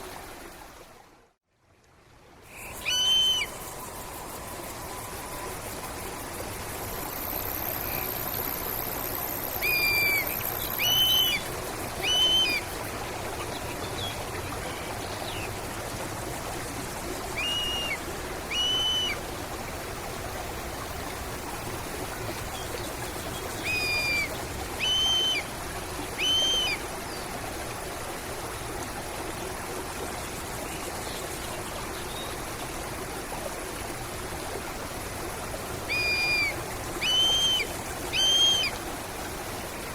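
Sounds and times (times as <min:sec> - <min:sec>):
stream water running: 0:00.0 - 0:39.9
bird whistled calls: 0:02.5 - 0:03.7, 0:09.6 - 0:12.6, 0:17.4 - 0:19.2, 0:23.6 - 0:25.5, 0:26.2 - 0:26.8, 0:35.9 - 0:38.8.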